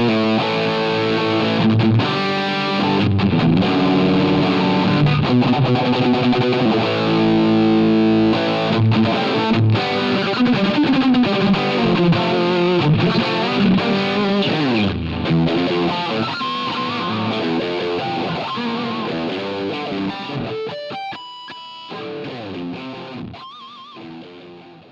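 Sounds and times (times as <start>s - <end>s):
overdriven electric guitar: 0.0s - 24.9s.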